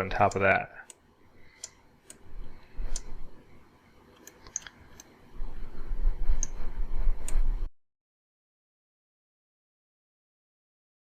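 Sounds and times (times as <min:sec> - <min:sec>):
computer mouse clicks: 0:01.6 - 0:03.2, 0:04.1 - 0:05.2, 0:06.4 - 0:06.6, 0:07.2 - 0:07.5.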